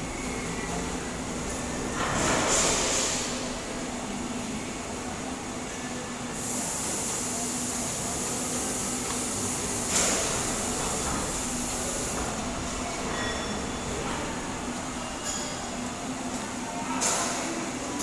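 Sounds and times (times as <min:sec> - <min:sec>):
welding arc hissing and crackling: 0:06.4 - 0:12.3.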